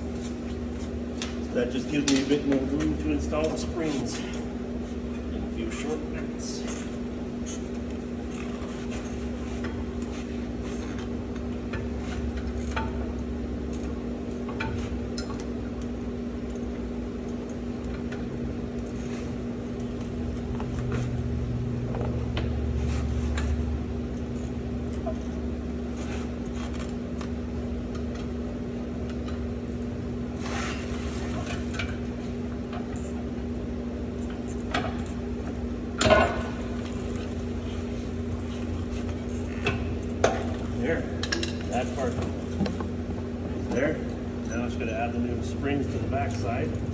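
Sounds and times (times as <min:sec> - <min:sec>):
steady hum: 0:00.0 - 0:46.9
metal tools clinking: 0:40.5 - 0:46.9.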